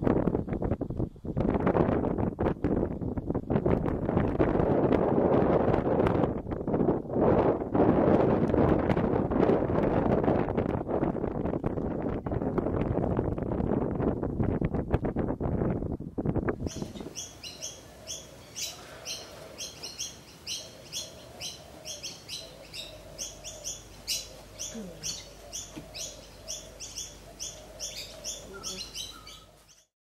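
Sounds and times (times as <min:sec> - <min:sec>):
wind buffeting the microphone: 0:00.0 - 0:29.6
small bird chirping: 0:16.6 - 0:29.9.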